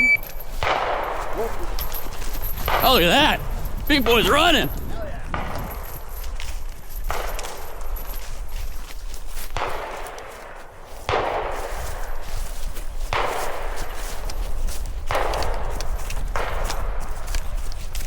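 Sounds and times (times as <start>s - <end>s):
gunshots with echo: 2.6s - 5.9s.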